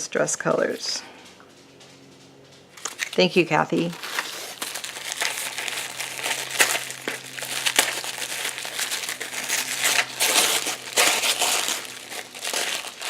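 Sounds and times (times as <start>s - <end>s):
packaging crinkling: 2.8s - 13.0s.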